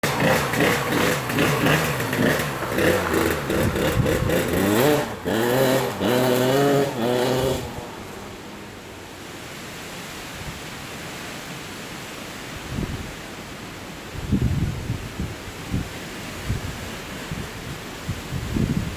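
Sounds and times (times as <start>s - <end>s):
two-stroke engine revving: 0.0s - 8.9s.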